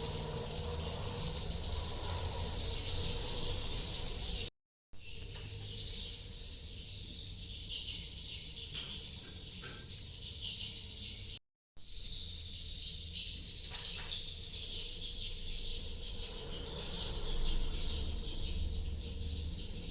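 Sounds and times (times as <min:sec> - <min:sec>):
swiftlets chittering: 0:00.0 - 0:04.5.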